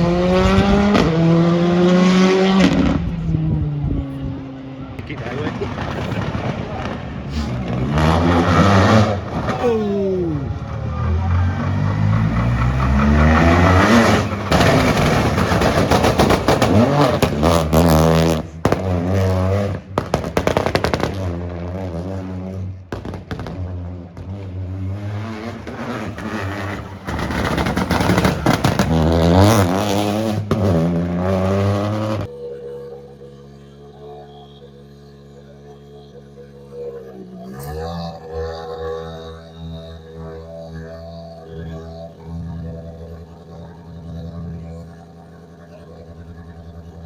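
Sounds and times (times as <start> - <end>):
rally car engine revving: 0.0 - 47.0
exhaust pops and bangs: 12.2 - 21.8, 22.9 - 32.3.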